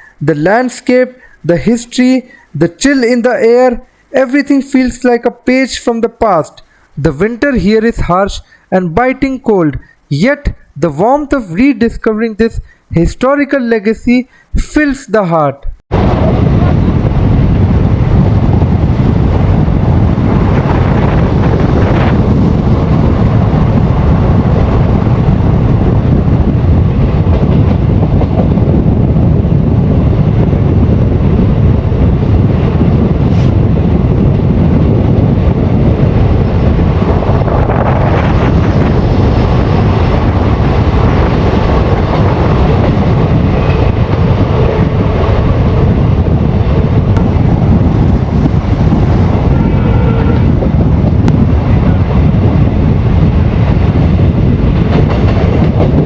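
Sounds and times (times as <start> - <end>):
wind buffeting microphone: 15.7 - 56.0
train rumbling on rails: 15.9 - 56.0.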